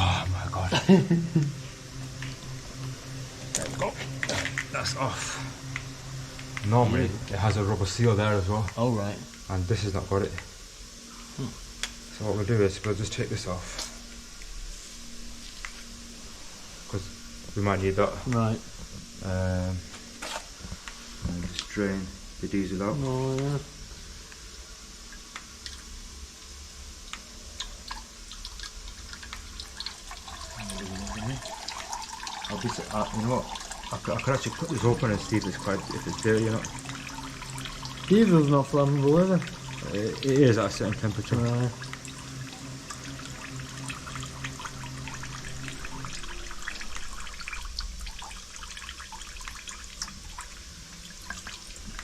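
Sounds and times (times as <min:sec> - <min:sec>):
fuel trickling and dripping: 0:00.0 - 0:52.0
steady low hum: 0:00.0 - 0:52.0
person speaking: 0:06.6 - 0:10.4, 0:38.1 - 0:41.8.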